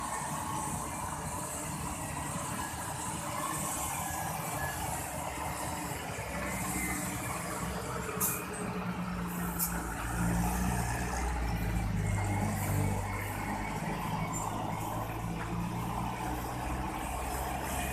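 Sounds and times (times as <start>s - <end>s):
road traffic noise: 0.0s - 17.9s
truck diesel engine labouring: 0.0s - 17.9s
air brake hisses: 8.2s - 8.6s.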